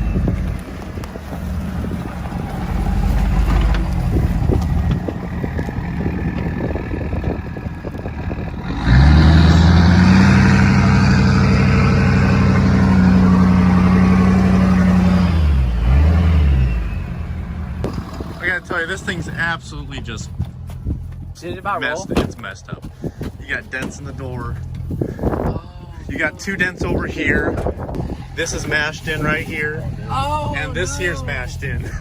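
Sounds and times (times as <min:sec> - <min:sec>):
pickup truck engine revving: 0:00.0 - 0:20.7.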